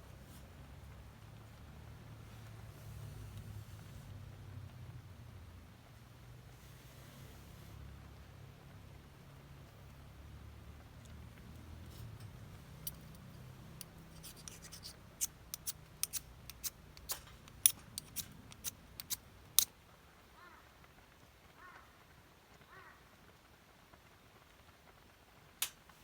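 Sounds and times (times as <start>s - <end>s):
sharp clicks and snaps: 12.8s - 19.7s, 25.6s - 25.9s.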